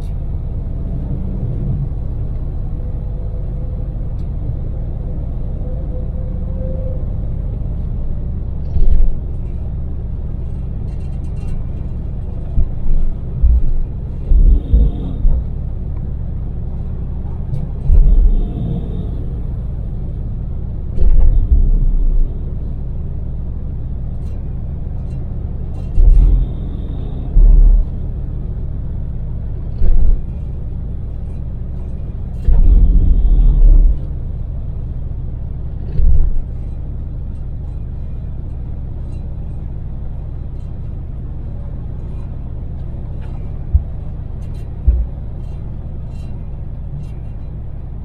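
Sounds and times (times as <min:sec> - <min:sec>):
minivan engine and road noise: 0:00.0 - 0:48.0
loud low thumps: 0:12.6 - 0:22.8, 0:25.9 - 0:28.5, 0:29.7 - 0:30.4, 0:32.4 - 0:34.4, 0:43.7 - 0:44.1, 0:44.7 - 0:45.4.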